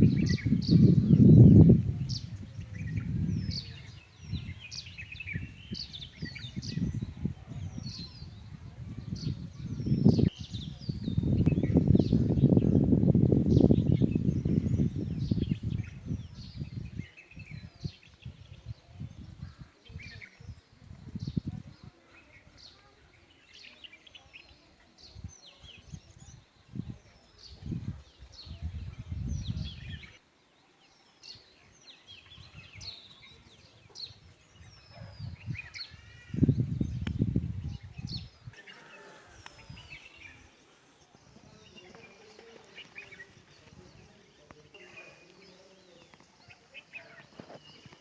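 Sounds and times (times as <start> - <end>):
birds chirping: 0.0 - 48.0.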